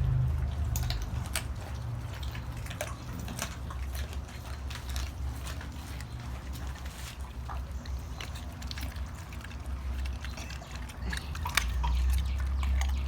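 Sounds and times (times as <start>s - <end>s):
steady low rumble: 0.0s - 3.4s
dogs chewing bones: 0.0s - 13.0s.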